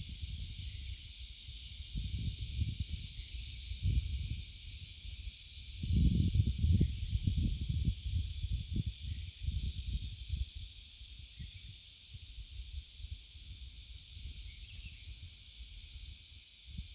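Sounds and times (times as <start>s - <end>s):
steady high hiss: 0.0s - 16.9s
low rumbling wind gusts: 5.8s - 10.1s.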